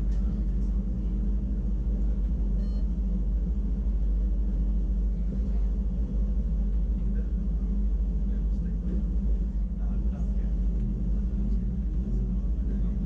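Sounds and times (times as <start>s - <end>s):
electric train rumbling: 0.0s - 13.0s
motor and gear hum: 0.0s - 13.0s.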